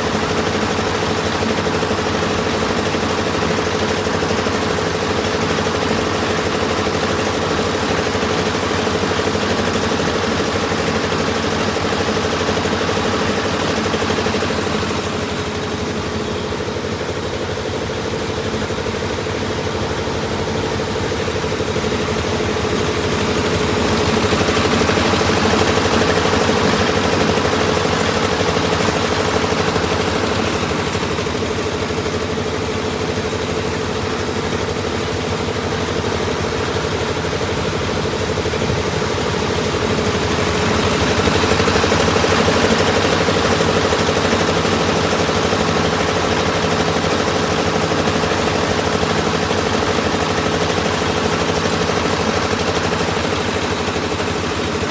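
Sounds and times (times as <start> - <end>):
heavy machinery engine humming: 14.7 - 43.2.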